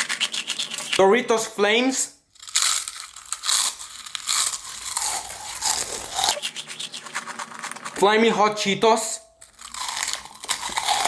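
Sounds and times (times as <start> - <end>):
chips crunching while chewed: 2.3 - 8.0, 9.4 - 11.0.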